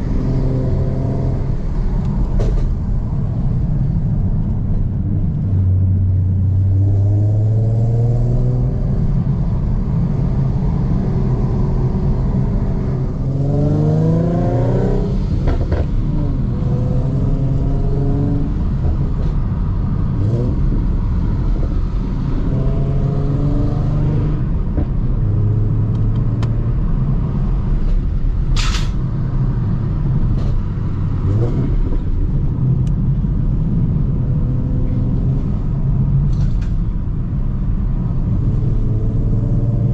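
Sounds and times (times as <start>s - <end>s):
car engine revving: 5.7s - 26.6s.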